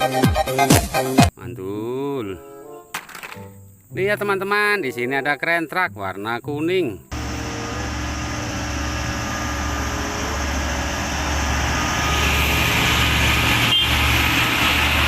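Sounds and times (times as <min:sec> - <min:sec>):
truck engine running: 0:07.1 - 0:15.0.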